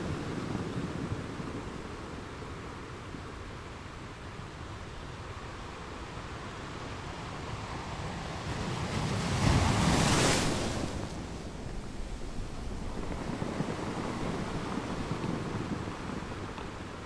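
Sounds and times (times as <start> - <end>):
waves on open water: 0.0 - 17.0
wind buffeting microphone: 6.9 - 17.0.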